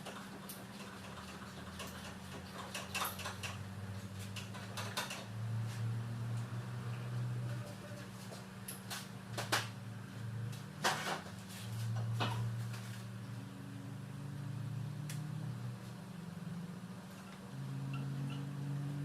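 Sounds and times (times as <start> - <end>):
tools clicking and knocking: 0.0 - 3.6, 4.2 - 5.3.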